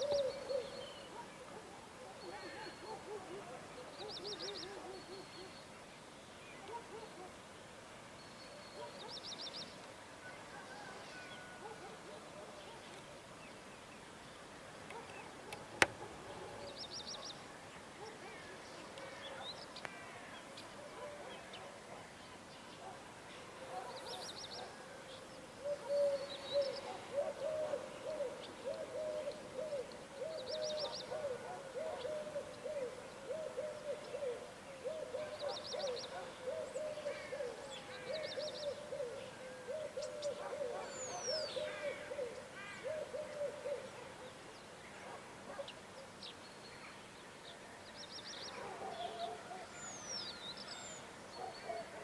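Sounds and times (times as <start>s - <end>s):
bird cooing: 0.0s - 5.6s, 25.6s - 44.5s, 51.4s - 52.0s
birds chirping: 0.0s - 52.0s.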